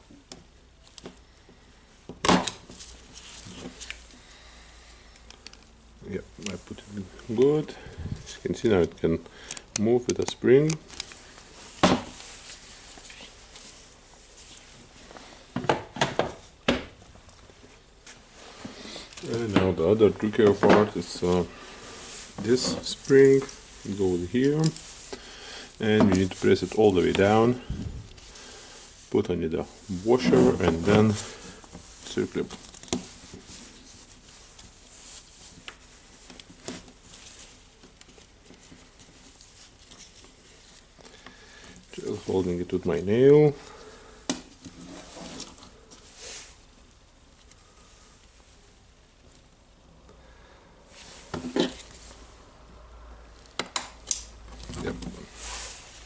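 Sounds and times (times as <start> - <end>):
handling noise: 5.3 - 48.4.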